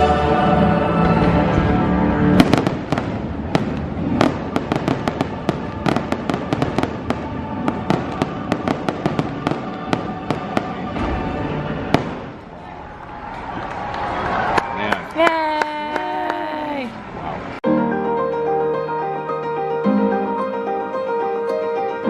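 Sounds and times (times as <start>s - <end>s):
orchestral music: 0.0s - 12.8s, 17.6s - 22.0s
fireworks bangs and crackles: 2.3s - 12.6s.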